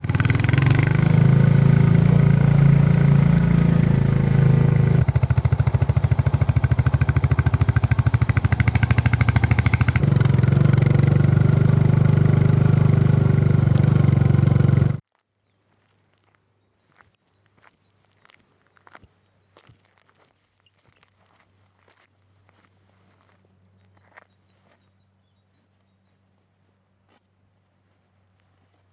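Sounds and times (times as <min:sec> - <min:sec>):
single-cylinder motorcycle engine: 0:00.0 - 0:15.0.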